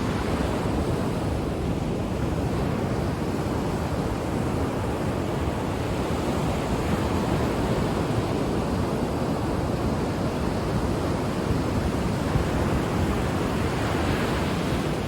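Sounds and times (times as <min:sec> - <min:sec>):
ocean surf washing on shore: 0:00.0 - 0:15.0.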